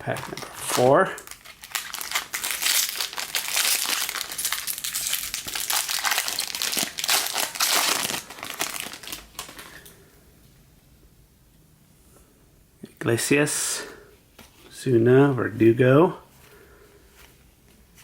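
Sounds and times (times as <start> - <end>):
wrapper tearing and crinkling: 0.0 - 9.8.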